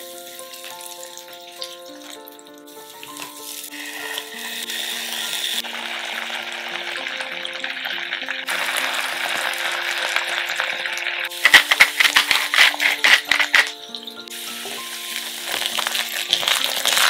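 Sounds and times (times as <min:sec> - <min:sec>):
potato slices sizzling in oil: 0:00.0 - 0:17.0
soft background music: 0:00.0 - 0:17.0.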